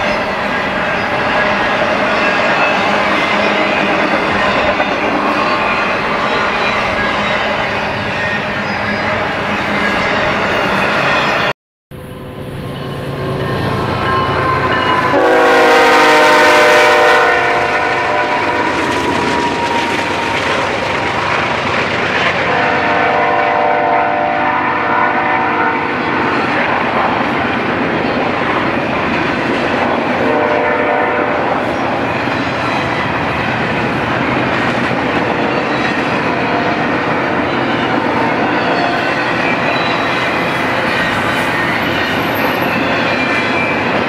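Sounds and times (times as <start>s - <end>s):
train wheels clacking on rails: 0.0s - 11.4s, 12.8s - 24.3s, 25.8s - 44.0s
train air horn blasts: 14.4s - 18.8s, 22.4s - 26.3s, 30.2s - 31.6s.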